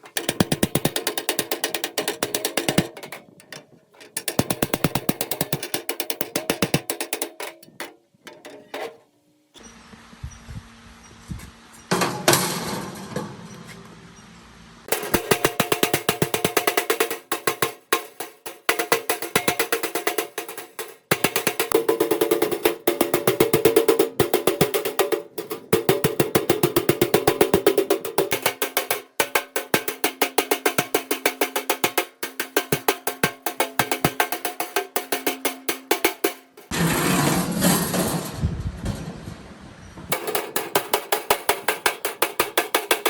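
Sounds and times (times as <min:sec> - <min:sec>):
hammer striking metal: 0:14.9 - 0:23.4.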